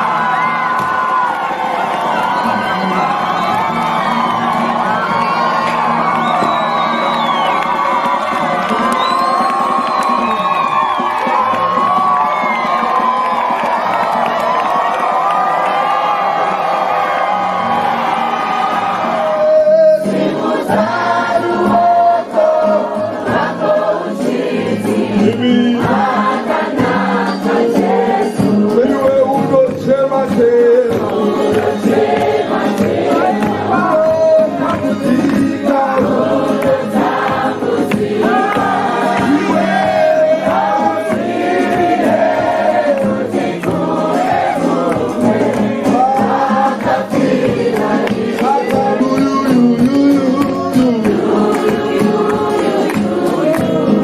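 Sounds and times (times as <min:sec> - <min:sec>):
group singing worship song: 0:18.6 - 0:54.0.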